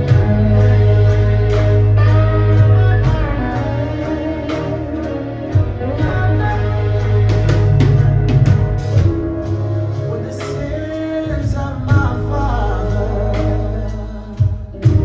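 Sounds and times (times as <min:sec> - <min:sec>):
drum hits: 0:00.0 - 0:09.8, 0:14.4 - 0:15.0
heavy bass line: 0:00.0 - 0:15.0
live band music: 0:00.0 - 0:15.0
person singing: 0:00.0 - 0:15.0.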